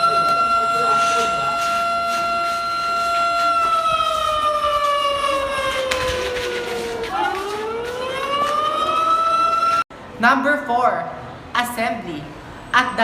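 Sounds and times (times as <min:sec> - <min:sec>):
siren wailing: 0:00.0 - 0:09.8.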